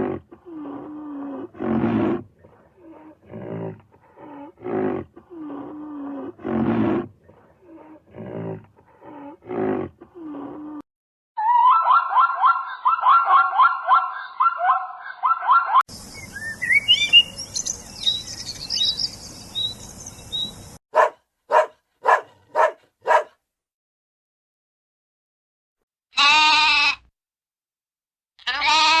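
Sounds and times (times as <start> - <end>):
bird song with chirps: 11.5 - 20.8
long bleat-like call: 26.1 - 27.1, 28.4 - 29.0.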